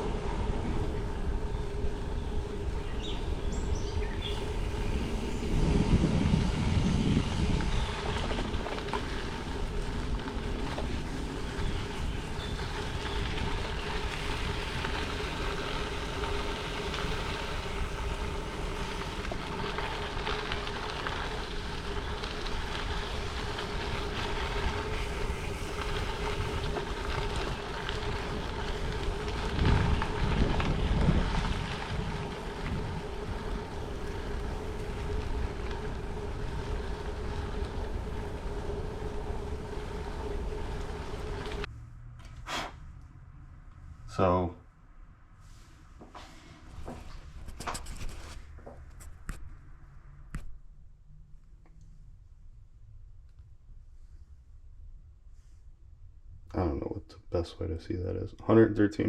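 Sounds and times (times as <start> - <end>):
bicycle tyres rolling on gravel: 0.0 - 41.7, 45.5 - 51.4
wind buffeting microphone: 0.0 - 41.7
constant hum: 0.0 - 59.0.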